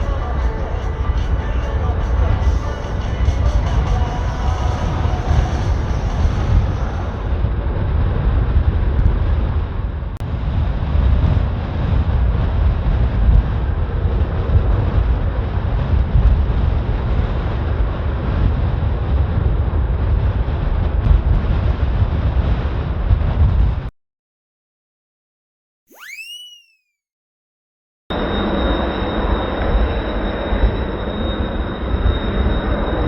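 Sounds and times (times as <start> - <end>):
gusty wind buffeting microphone: 0.0 - 23.9.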